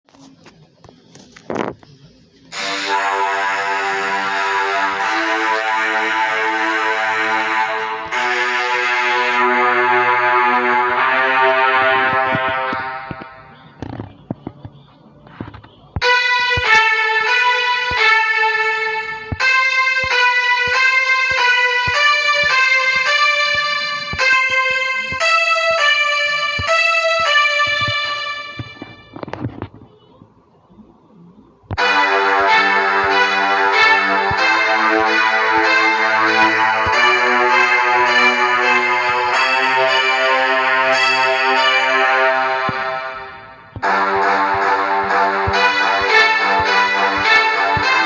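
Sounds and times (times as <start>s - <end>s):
electronic keyboard chords: 1.5s - 29.7s, 31.2s - 48.0s.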